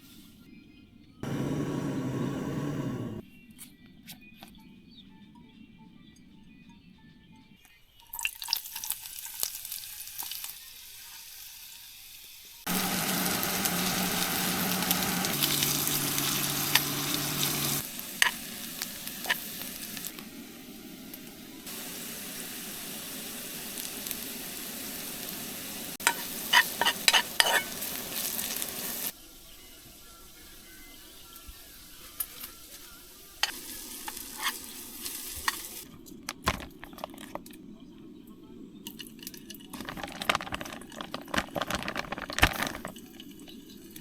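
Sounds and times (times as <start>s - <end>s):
food sizzling in a pan: 8.0s - 36.0s.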